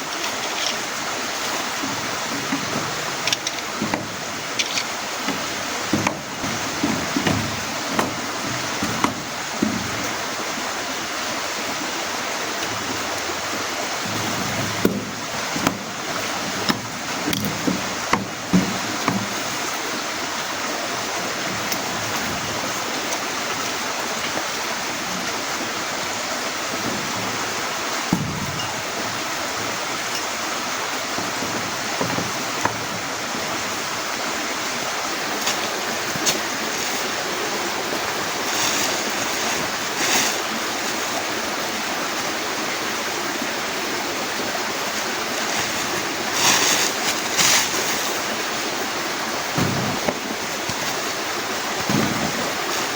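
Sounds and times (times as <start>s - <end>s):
heavy rain falling: 0.0s - 52.9s
sharp knocks: 1.8s - 10.2s, 28.1s - 29.0s, 49.6s - 50.9s.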